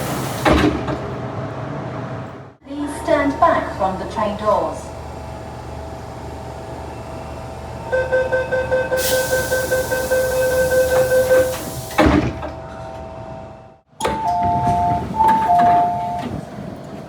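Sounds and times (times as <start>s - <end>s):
sliding doors slamming shut: 0.0s - 1.2s, 9.0s - 12.6s
train door warning beeps: 6.8s - 12.1s, 14.0s - 16.5s
air hiss: 9.0s - 12.0s.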